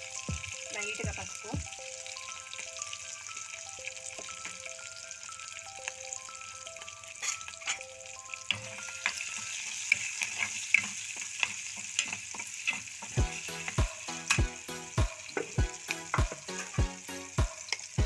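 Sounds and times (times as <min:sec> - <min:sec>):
onions sizzling in oil: 0:00.0 - 0:18.0
spatula scraping a pan: 0:07.1 - 0:07.8, 0:08.5 - 0:13.8.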